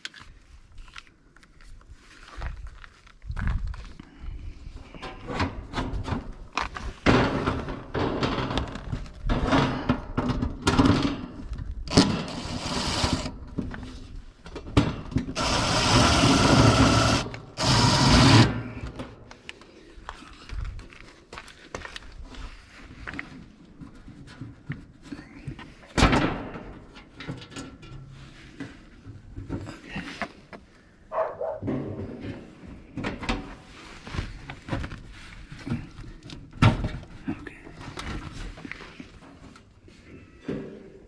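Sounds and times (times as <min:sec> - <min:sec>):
impact driver rattling: 0:11.9 - 0:13.5, 0:15.3 - 0:19.1.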